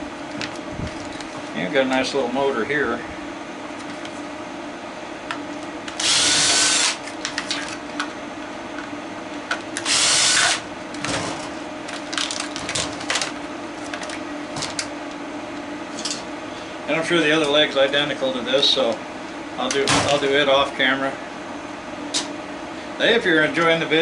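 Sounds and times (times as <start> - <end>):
power drill bursts: 6.0 - 7.0, 9.8 - 10.6.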